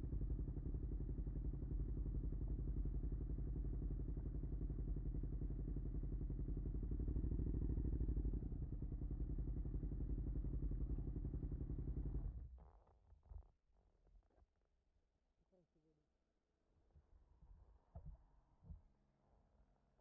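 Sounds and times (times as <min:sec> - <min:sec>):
motorcycle engine idling: 0:00.0 - 0:12.4.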